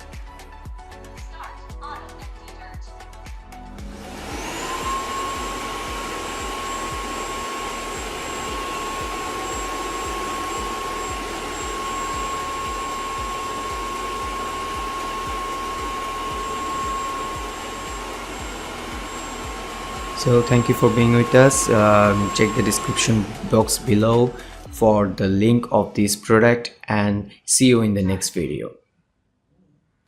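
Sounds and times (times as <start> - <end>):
vacuum motor whining: 3.7 - 24.8.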